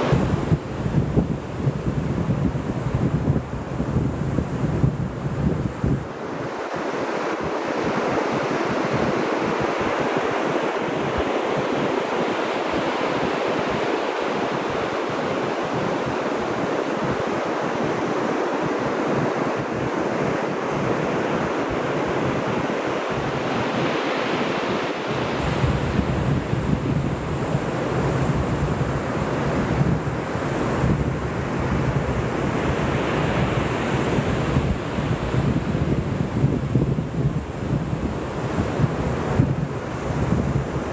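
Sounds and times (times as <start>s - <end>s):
ocean surf washing on beach: 0.0s - 40.9s
wind rumbling on microphone: 0.0s - 40.9s.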